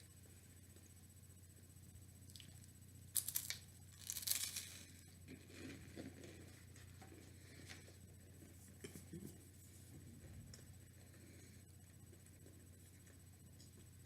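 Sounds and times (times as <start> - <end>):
wrapper being torn open: 3.2 - 4.9.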